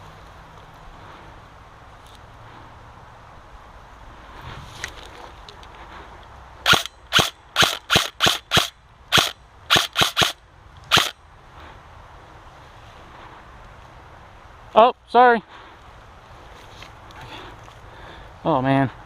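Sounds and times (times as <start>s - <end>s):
airsoft gun shots: 6.7s - 11.1s.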